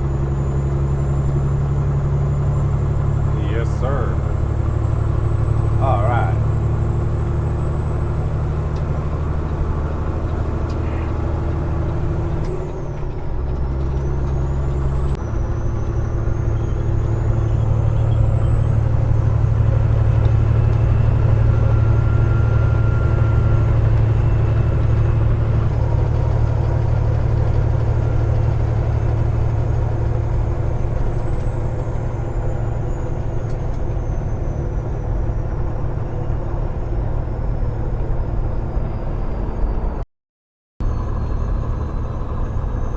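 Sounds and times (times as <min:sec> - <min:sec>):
truck diesel engine droning: 0:00.0 - 0:40.0, 0:40.8 - 0:42.9.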